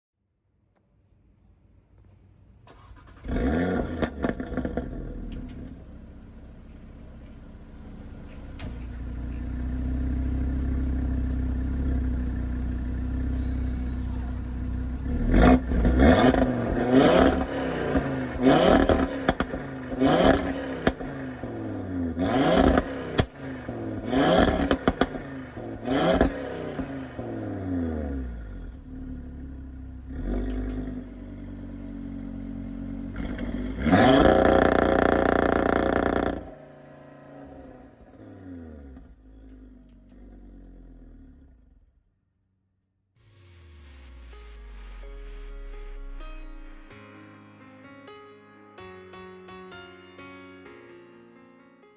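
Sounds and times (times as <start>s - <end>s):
exhaust crackles: 2.6s - 42.1s
car engine revving: 2.7s - 42.0s.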